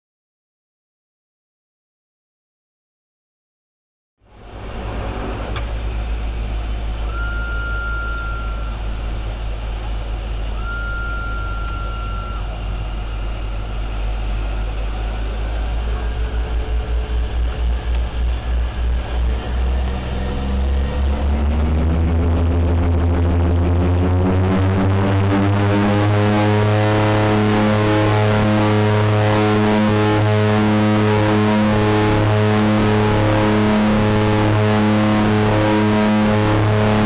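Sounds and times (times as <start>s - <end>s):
turboprop engines droning: 4.2s - 37.0s
propellers beating in pulsing rhythm: 4.3s - 37.0s
short electronic beeps: 4.4s - 16.9s.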